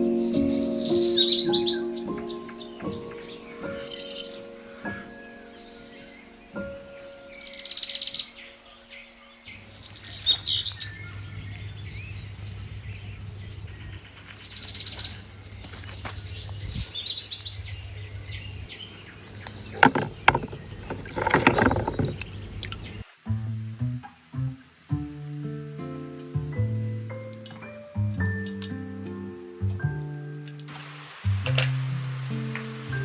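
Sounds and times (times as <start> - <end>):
small songbirds chirping: 0.0 - 23.2.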